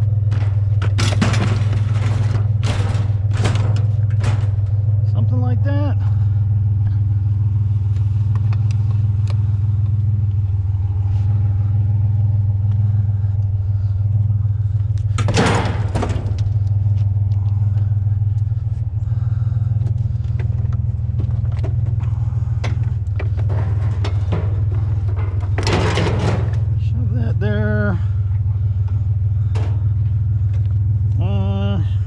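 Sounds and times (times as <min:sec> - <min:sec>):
scattered knocks: 0:00.0 - 0:04.9
loud clatter: 0:00.0 - 0:05.3, 0:14.6 - 0:27.0, 0:28.0 - 0:31.1
truck engine idling: 0:00.0 - 0:32.0.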